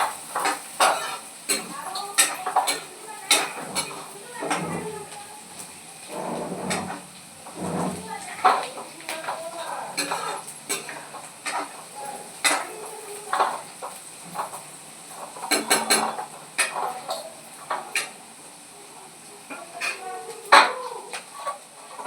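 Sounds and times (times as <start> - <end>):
faint sizzle: 0.0 - 22.0
metal spoon scraping a pan: 0.4 - 12.7.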